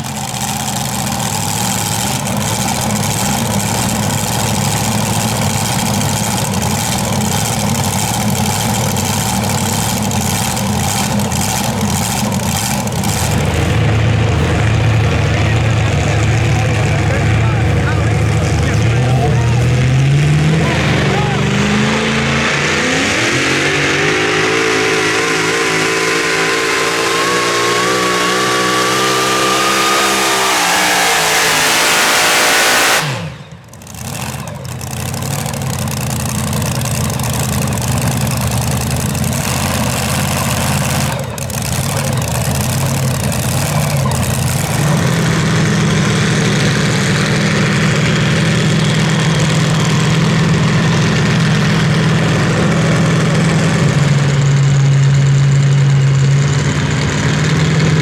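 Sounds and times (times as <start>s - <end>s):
engine idling: 0.0s - 58.0s
truck engine at full throttle: 0.0s - 58.0s.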